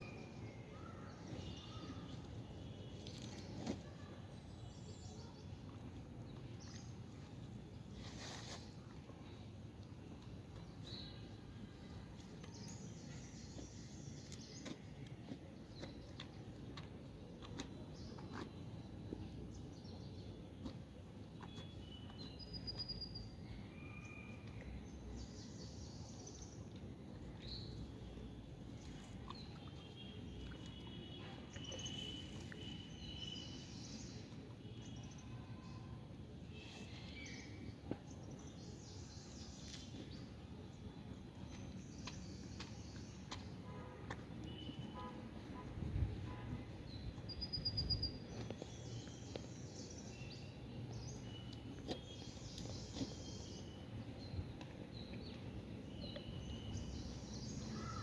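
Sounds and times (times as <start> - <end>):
low background noise: 0.0 - 58.0
small birds chirping: 10.2 - 35.9, 36.5 - 43.7, 46.9 - 58.0.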